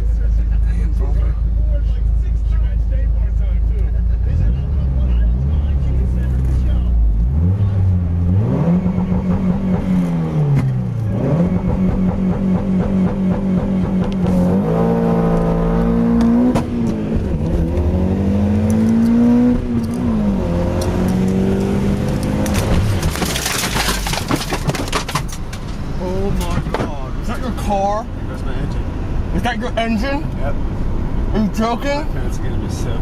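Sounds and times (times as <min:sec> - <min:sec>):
car engine revving hard: 0:04.3 - 0:23.7.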